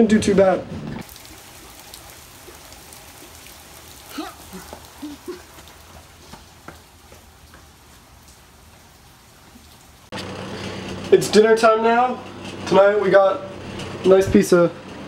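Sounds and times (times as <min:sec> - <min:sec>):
heavy rain on pavement: 0:01.0 - 0:10.2.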